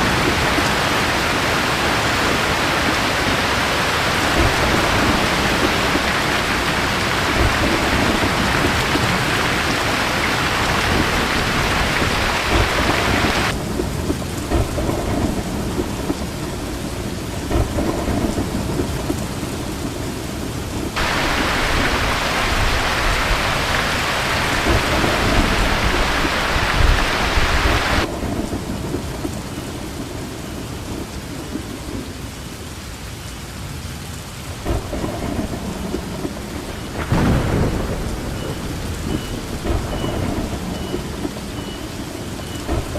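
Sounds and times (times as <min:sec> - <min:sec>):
low rolling thunder: 0:00.0 - 0:32.3, 0:34.5 - 0:42.9
heavy rain falling: 0:00.0 - 0:42.9.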